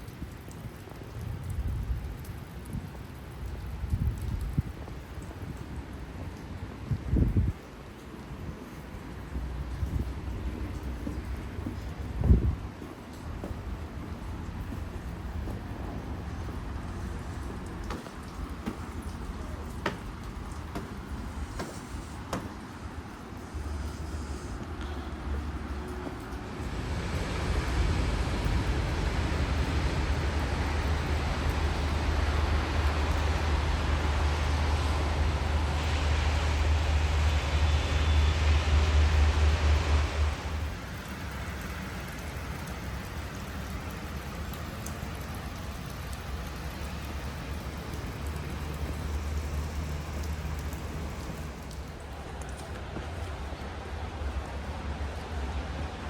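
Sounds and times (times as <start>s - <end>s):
wind rumbling on microphone: 0.0s - 43.8s
rain hissing: 0.0s - 56.0s.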